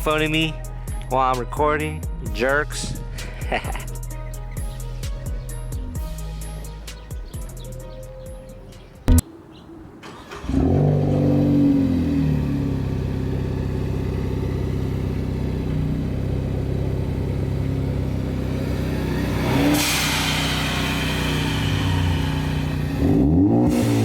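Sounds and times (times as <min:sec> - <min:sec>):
car engine starting and idling: 0:00.0 - 0:24.0
engine revving with hiss: 0:10.1 - 0:15.9, 0:18.3 - 0:24.0.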